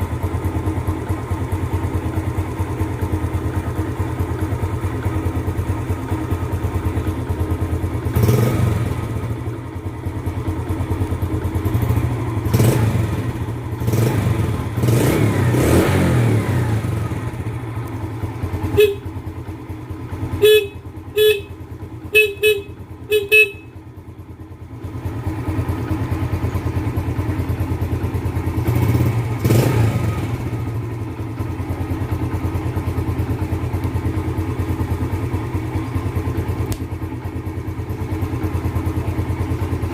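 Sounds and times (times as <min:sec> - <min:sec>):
motorcycle engine idling: 0:00.0 - 0:39.9
horn short beeps: 0:18.7 - 0:19.2, 0:20.3 - 0:23.8.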